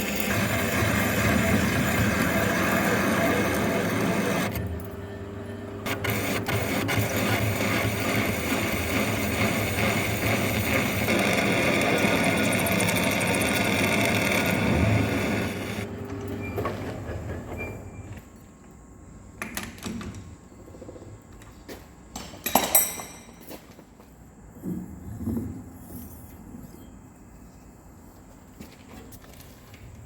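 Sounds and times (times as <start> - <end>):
metalworking machine cutting: 0.0 - 5.0, 5.8 - 15.9
metal clanks and knocks: 22.1 - 23.6.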